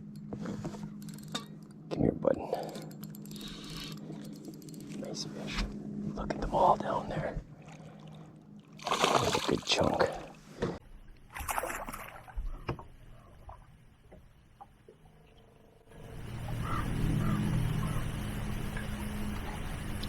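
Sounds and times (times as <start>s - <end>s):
boat motor running: 15.0s - 20.0s.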